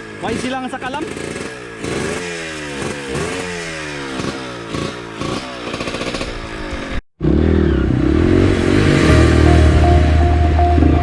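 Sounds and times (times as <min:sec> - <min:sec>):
dirt bike engine revving: 0:00.0 - 0:11.0
music: 0:07.9 - 0:11.0.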